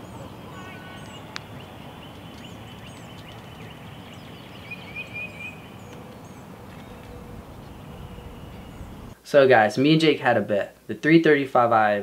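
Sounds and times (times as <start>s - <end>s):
bird warbling: 0.0s - 9.2s
songbirds chirping: 0.0s - 10.0s
outdoor background noise: 0.0s - 12.0s.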